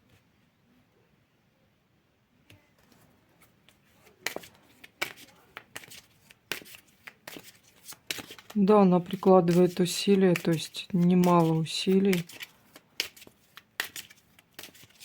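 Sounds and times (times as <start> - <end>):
cards snapping and slapping: 4.1 - 8.6, 9.5 - 15.0.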